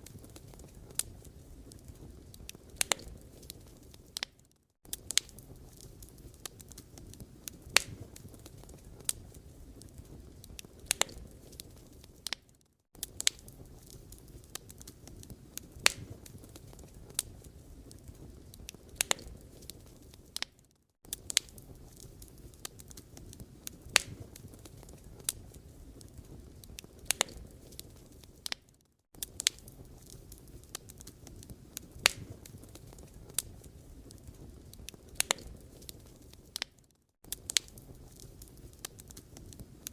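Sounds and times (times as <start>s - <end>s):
firewood crackling and popping: 0.0s - 39.9s
rustle of flames: 0.0s - 39.9s.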